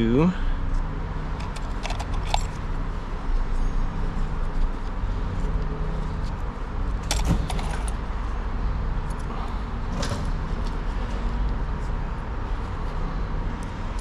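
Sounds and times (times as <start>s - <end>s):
steady low hum: 0.0s - 14.0s
small fasteners clinking: 1.3s - 2.6s.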